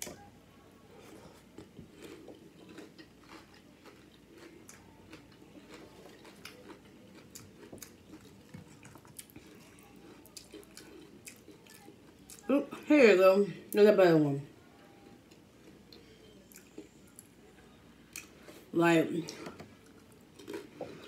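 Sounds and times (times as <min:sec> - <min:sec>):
person crunching chips: 0:01.6 - 0:11.5.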